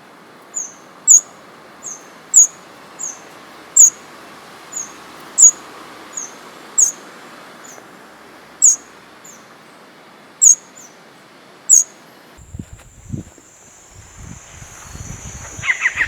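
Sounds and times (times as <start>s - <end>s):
background hiss: 0.0s - 16.0s
bird chirping high and sharp: 14.2s - 16.0s.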